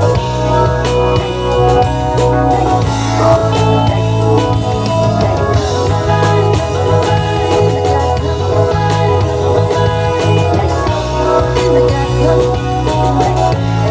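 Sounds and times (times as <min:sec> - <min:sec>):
rock band playing live: 0:00.0 - 0:13.9.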